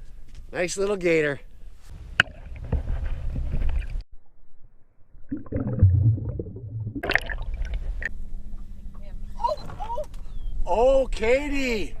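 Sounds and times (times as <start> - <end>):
water splashing and gurgling: 5.3 - 8.1.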